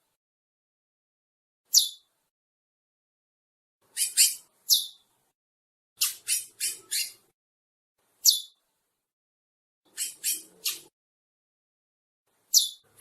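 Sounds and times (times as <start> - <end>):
finches calling: 1.7 - 2.1, 3.9 - 5.1, 6.0 - 7.2, 8.2 - 8.6, 9.9 - 10.9, 12.5 - 13.0.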